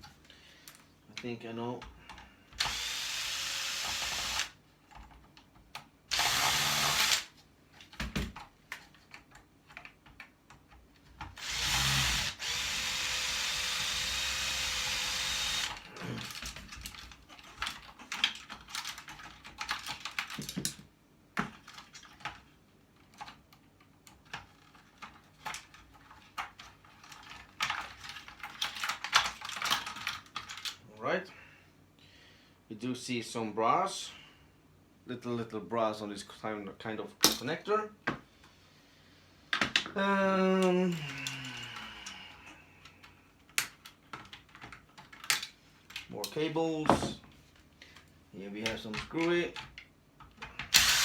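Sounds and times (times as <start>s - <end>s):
power drill motor whine: 2.6s - 4.6s, 6.1s - 7.3s, 11.4s - 15.8s, 50.7s - 51.0s
parts clicking and rattling: 3.8s - 30.8s, 40.9s - 51.0s.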